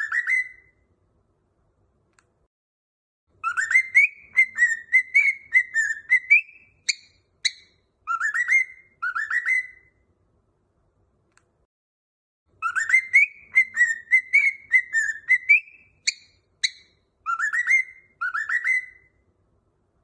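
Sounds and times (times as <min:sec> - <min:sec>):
cockatiel whistling: 0:00.0 - 0:00.8, 0:03.4 - 0:10.0, 0:12.6 - 0:19.2
sharp bird chirps: 0:00.0 - 0:00.8, 0:03.4 - 0:10.0, 0:12.6 - 0:19.2.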